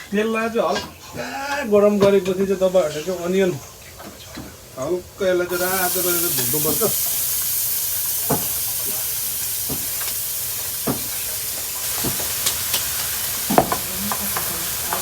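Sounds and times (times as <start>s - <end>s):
onion sizzling in hot oil: 0.0s - 15.0s
utensil clicking in a pan: 5.5s - 15.0s.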